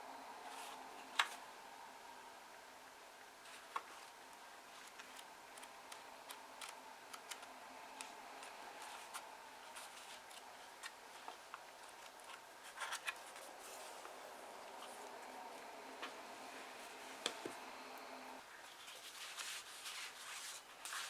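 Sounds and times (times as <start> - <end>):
paper pages rustling: 3.4 - 15.1, 18.5 - 21.0.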